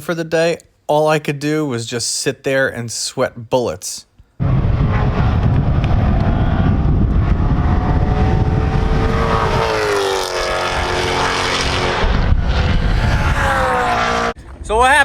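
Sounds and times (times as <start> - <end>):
car engine accelerating hard: 4.4 - 14.4.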